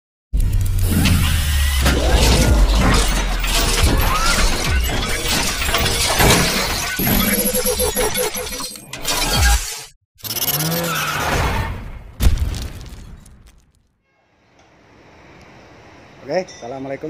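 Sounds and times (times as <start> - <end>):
deep drone: 0.4 - 6.3
glass shattering effects: 1.8 - 9.7.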